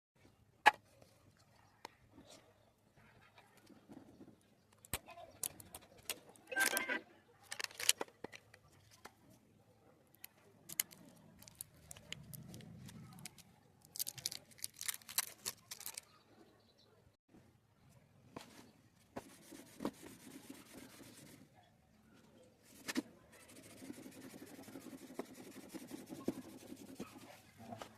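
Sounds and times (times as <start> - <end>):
packaging crinkling: 7.5 - 8.0, 10.7 - 16.1
packaging clicks and taps: 7.5 - 9.1, 10.2 - 16.0.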